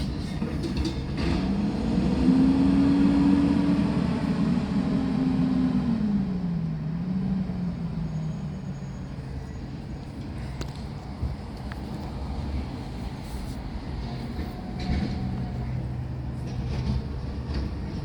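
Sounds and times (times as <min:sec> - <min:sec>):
diesel engine revving: 0:00.1 - 0:09.2.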